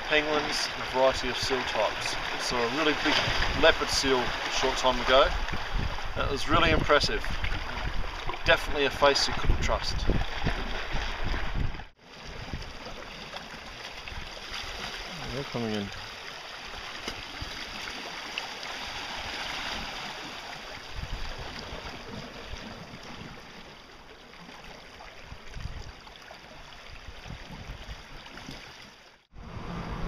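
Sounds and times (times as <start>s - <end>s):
seawater washing on shore: 0.0s - 24.0s
wind gusting on microphone: 3.1s - 12.7s, 20.9s - 22.8s.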